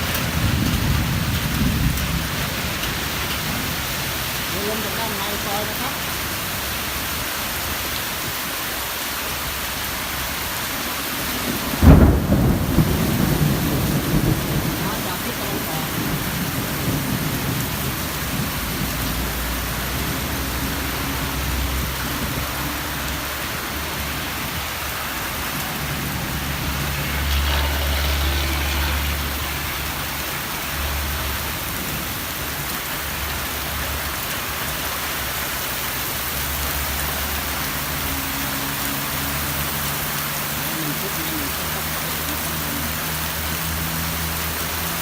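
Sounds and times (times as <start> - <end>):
heavy rain drumming: 0.0 - 45.0.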